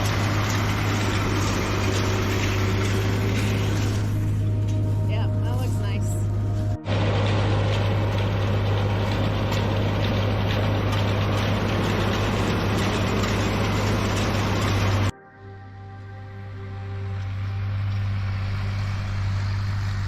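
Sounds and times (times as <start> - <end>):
baling machine rattle: 0.0 - 4.8, 6.9 - 15.1
tractor running: 0.0 - 15.1, 16.4 - 20.0.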